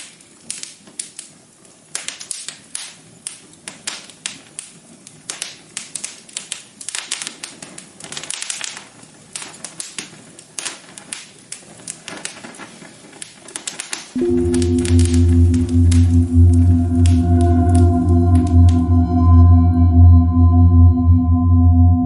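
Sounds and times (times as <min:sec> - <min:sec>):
wood fire crackling: 0:01.9 - 0:17.9.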